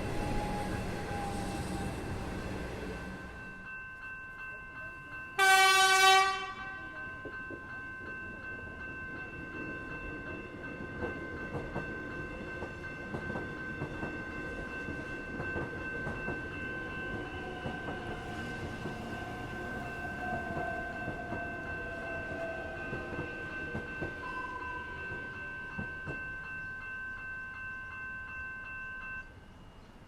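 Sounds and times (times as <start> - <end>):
train horn blast: 5.4 - 6.9
train wheel clicks and rumble: 6.9 - 26.4.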